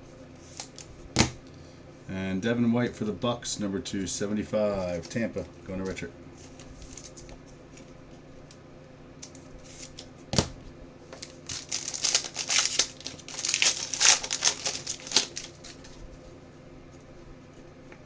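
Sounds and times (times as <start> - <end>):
plastic wrapper crinkling and tearing: 11.2 - 16.0.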